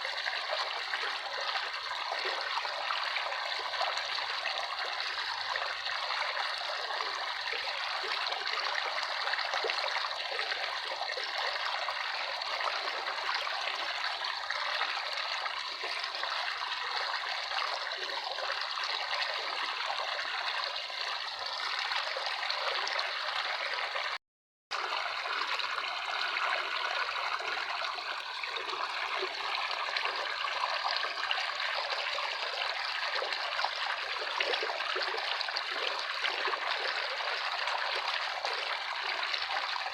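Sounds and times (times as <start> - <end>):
stream trickling and burbling: 0.0 - 39.9.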